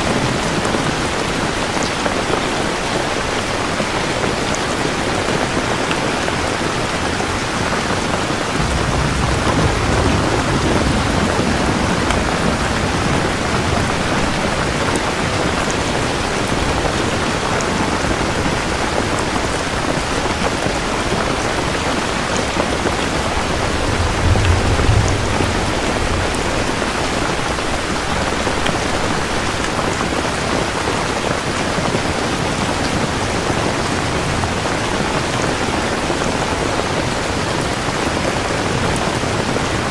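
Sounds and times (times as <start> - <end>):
thunder rumbling: 0.0 - 31.9
heavy rain: 0.0 - 39.9.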